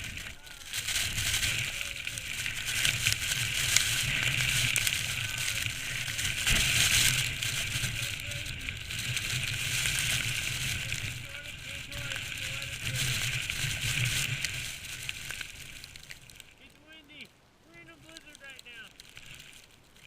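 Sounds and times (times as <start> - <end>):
wind buffeting microphone: 0.0 - 15.0
hiss of blowing snow: 0.0 - 15.2.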